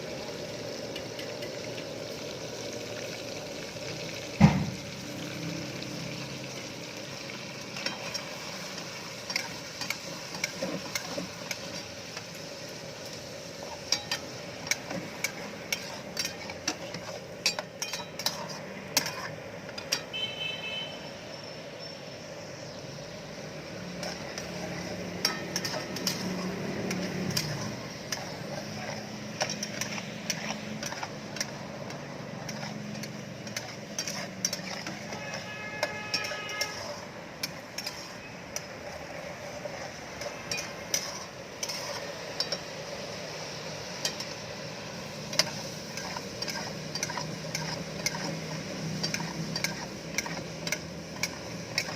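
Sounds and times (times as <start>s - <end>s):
food sizzling in a frying pan: 0.0s - 51.9s
metal utensil clinking on pan: 7.7s - 8.4s, 9.2s - 12.3s, 13.6s - 20.2s, 24.0s - 38.8s, 40.2s - 42.8s, 44.0s - 44.4s, 45.3s - 51.9s.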